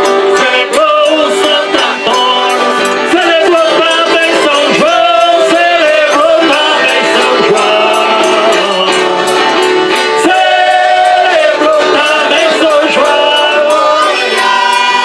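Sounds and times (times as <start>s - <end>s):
button accordion: 0.0s - 15.0s
group singing: 0.0s - 15.0s.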